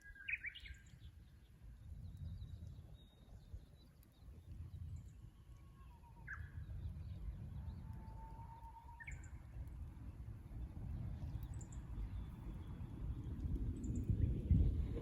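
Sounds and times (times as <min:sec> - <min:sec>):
bird singing whistled song: 0:00.0 - 0:01.1, 0:08.9 - 0:09.4.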